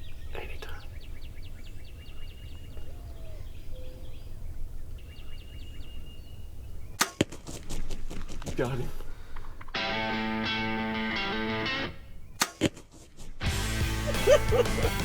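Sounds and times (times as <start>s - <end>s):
low wind noise: 0.0s - 12.4s
bow shot sharp crack: 7.0s - 8.5s, 12.4s - 12.9s.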